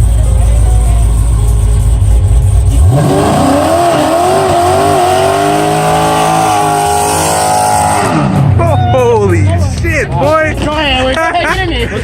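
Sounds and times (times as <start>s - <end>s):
deep rumble: 0.0s - 11.3s
car engine revving high: 1.0s - 8.7s.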